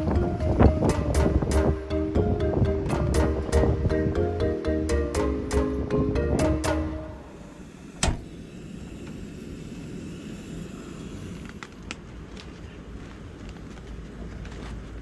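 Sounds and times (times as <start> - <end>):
background music: 0.0 - 7.5
low rushing noise: 0.0 - 11.6.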